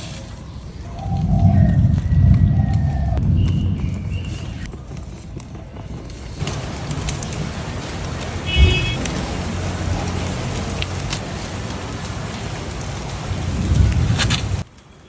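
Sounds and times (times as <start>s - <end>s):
steady rain falling: 0.0s - 15.0s
low rumble: 0.6s - 4.8s.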